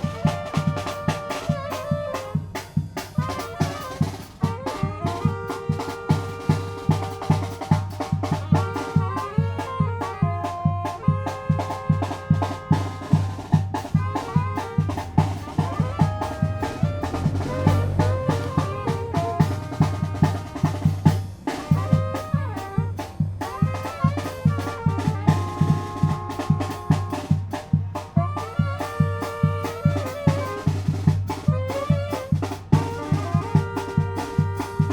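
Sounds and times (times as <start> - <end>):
bass drum and snare beat: 0.0 - 34.9
brass band melody: 0.0 - 34.9.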